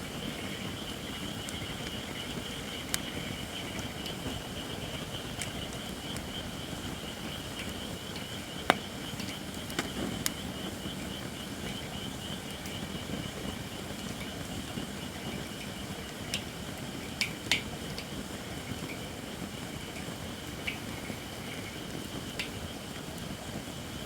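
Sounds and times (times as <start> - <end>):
fire crackling: 0.0 - 24.0
sharp pops from fire: 1.1 - 6.7, 7.3 - 11.1.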